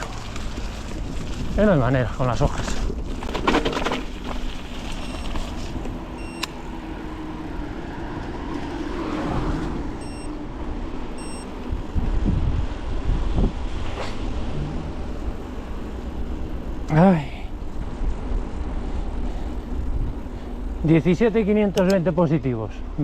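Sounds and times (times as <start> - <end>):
bike tyres rolling over leaves: 0.0 - 9.7.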